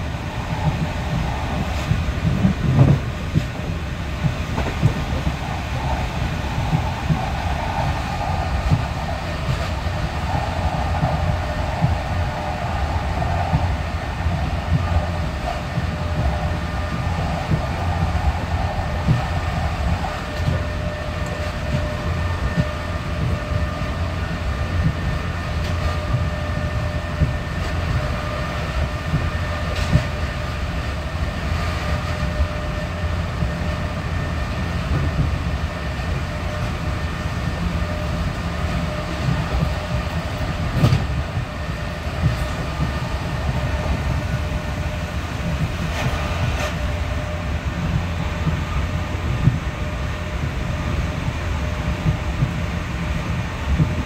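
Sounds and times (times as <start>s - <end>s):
wheel and rail rumble: 0.0s - 54.0s
sharp knocks from track: 40.8s - 41.1s.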